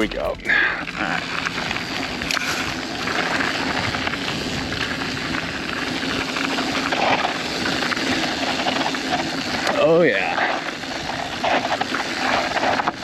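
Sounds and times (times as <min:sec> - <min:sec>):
tyres rushing on dirt and gravel: 0:00.0 - 0:13.0.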